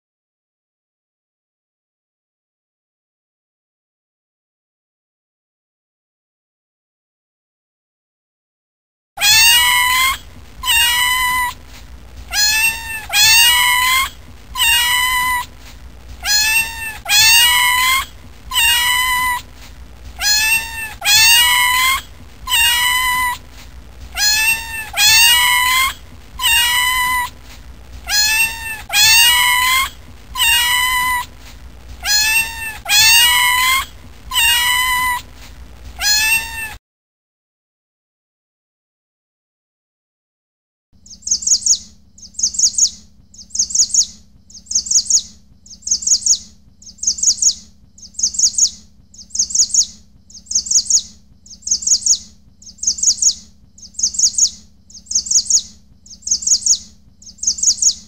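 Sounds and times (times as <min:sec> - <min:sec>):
kitten meowing: 0:09.2 - 0:11.6, 0:12.3 - 0:15.5, 0:16.2 - 0:19.5, 0:20.2 - 0:23.4, 0:24.2 - 0:27.4, 0:28.1 - 0:31.3, 0:32.0 - 0:35.3, 0:36.0 - 0:36.8.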